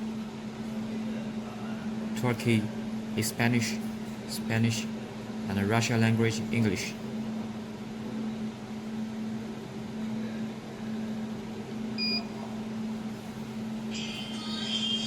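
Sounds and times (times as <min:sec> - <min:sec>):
machine cooling hum: 0:00.0 - 0:15.0
short electronic beep: 0:12.0 - 0:12.2.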